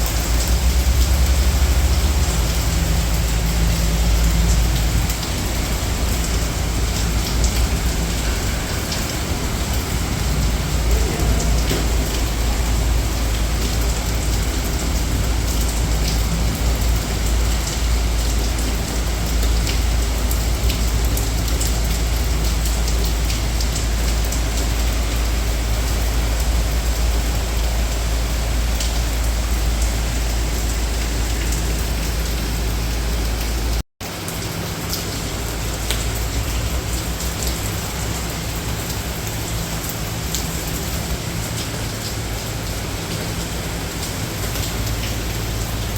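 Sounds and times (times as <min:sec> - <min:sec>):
low rumble: 0:00.0 - 0:33.6
heavy rain pattering: 0:00.0 - 0:45.9.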